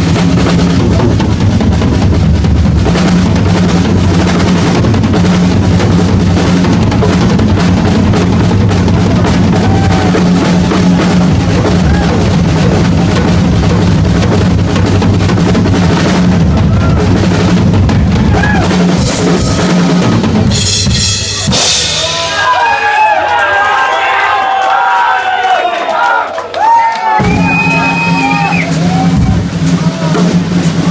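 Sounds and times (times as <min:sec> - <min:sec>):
rock drum kit solo: 0:00.0 - 0:23.0, 0:27.0 - 0:30.9
crowd cheering: 0:07.8 - 0:13.7, 0:16.1 - 0:20.4, 0:21.0 - 0:30.9.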